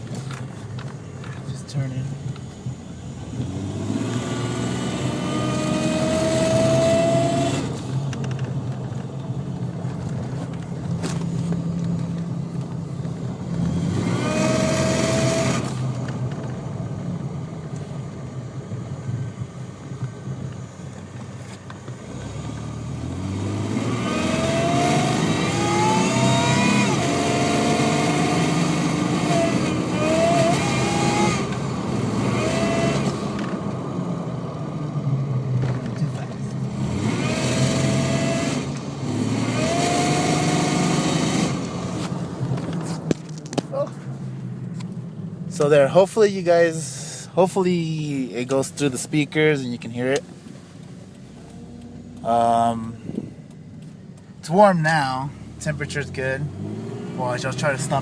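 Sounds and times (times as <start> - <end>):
engine pulling hard: 0.0 - 16.8, 21.8 - 34.4, 35.6 - 44.1, 51.0 - 58.0
supercharger whine rising: 2.3 - 8.0, 22.4 - 33.8.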